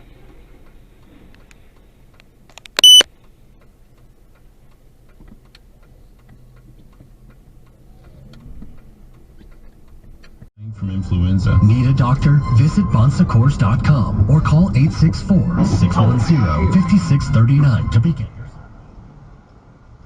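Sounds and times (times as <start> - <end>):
faint regular ticking: 0.3 - 10.5
high-pitched electronic beep: 2.8 - 3.0, 11.0 - 18.7
low steady hum: 10.8 - 20.0.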